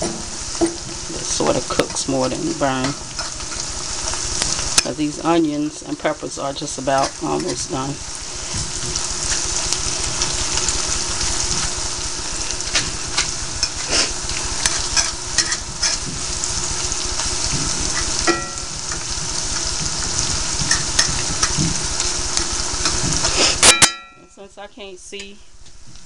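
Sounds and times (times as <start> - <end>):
vegetables sizzling in oil: 0.0 - 26.0
utensil clicking on pan: 20.7 - 21.6.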